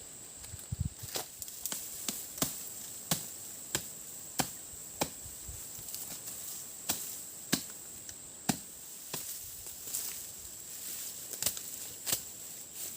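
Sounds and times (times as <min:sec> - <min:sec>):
wood being chopped: 0:01.1 - 0:05.2, 0:06.9 - 0:07.8, 0:08.5 - 0:09.4.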